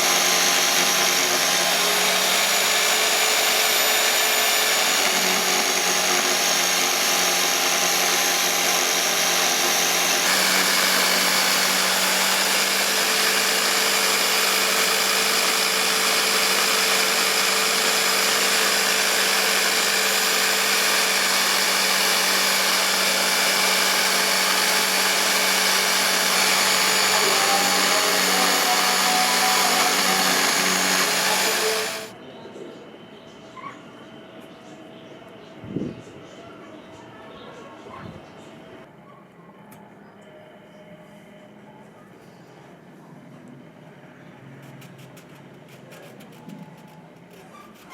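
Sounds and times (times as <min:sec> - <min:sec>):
electric power tool running: 0:00.0 - 0:32.2.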